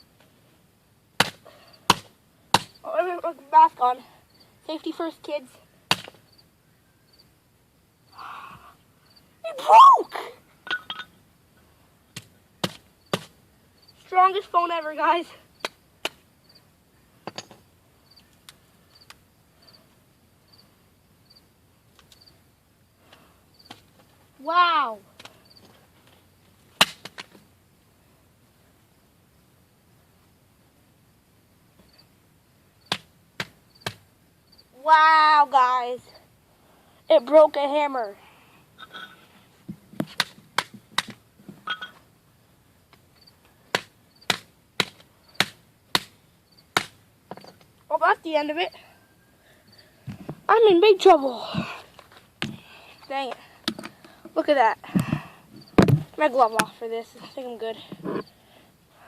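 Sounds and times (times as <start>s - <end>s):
cricket chirping: 2.6s - 2.9s, 4.3s - 4.6s, 6.2s - 9.4s, 13.0s - 14.9s, 15.5s - 23.8s, 25.4s - 25.7s, 31.8s - 33.0s, 33.6s - 34.8s, 43.2s - 43.4s, 44.0s - 44.3s, 45.1s - 45.5s, 46.4s - 47.6s, 48.6s - 49.9s, 55.1s - 56.6s, 58.1s - 58.4s.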